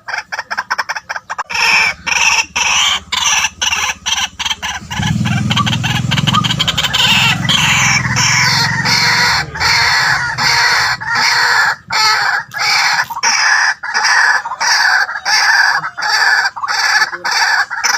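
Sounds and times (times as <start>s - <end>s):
waterhen calling harshly: 0.0s - 17.9s
low hum: 1.6s - 13.2s.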